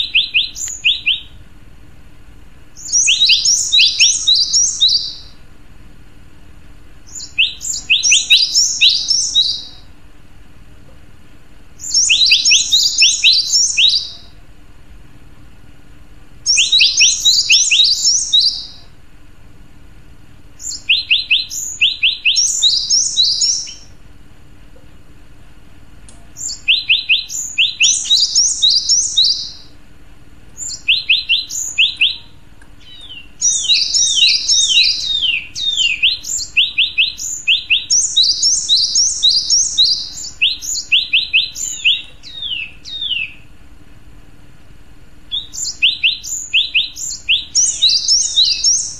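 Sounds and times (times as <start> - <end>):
bird singing high notes: 0.0 - 1.4, 2.8 - 5.4, 7.1 - 9.9, 11.8 - 14.4, 16.5 - 18.9, 20.6 - 24.0, 26.4 - 29.7, 30.6 - 43.4, 45.3 - 48.9.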